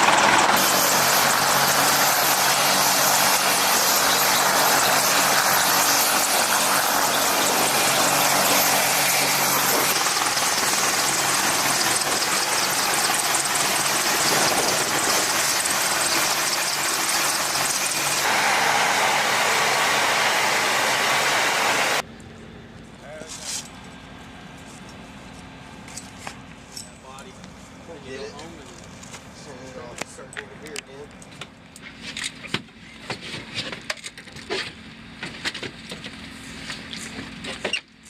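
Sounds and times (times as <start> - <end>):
helicopter engines and rotors: 0.0 - 22.7.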